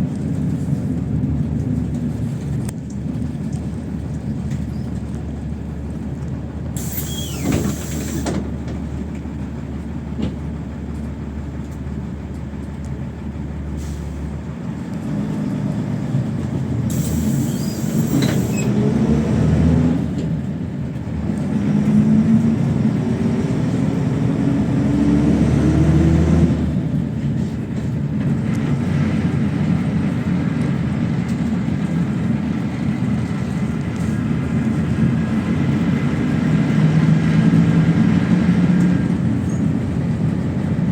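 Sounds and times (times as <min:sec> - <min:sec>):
bus engine idling: 0:00.0 - 0:40.9
bus pulling away: 0:00.0 - 0:40.9
compressed air hisses: 0:06.8 - 0:08.3, 0:16.9 - 0:18.6.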